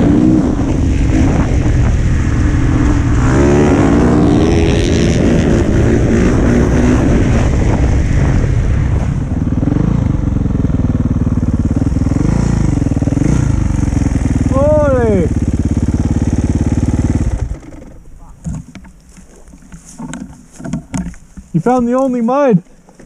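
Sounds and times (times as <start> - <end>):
dirt bike engine revving: 0.0 - 18.2.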